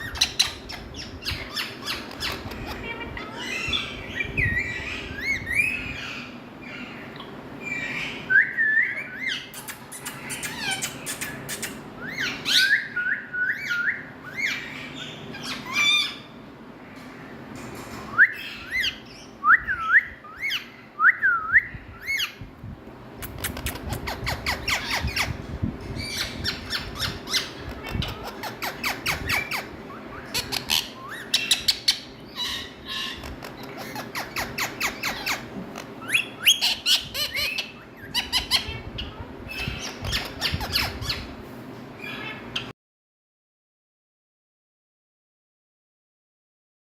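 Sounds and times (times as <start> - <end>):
parrot whistled calls: 11.6 - 16.2.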